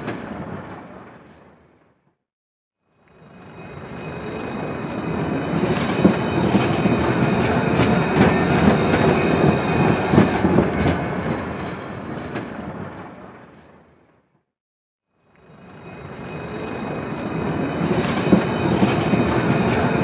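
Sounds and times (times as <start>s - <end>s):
train rumble: 3.2s - 14.1s, 15.4s - 20.0s
wheels clacking over rails: 5.3s - 13.9s.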